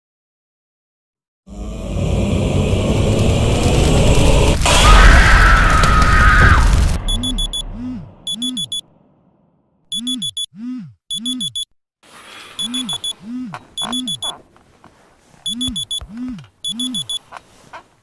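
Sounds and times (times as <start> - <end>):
smartphone alarm beeping: 7.1 - 7.6, 8.3 - 8.8, 9.9 - 11.7, 12.6 - 13.2, 13.8 - 14.4, 15.4 - 17.2.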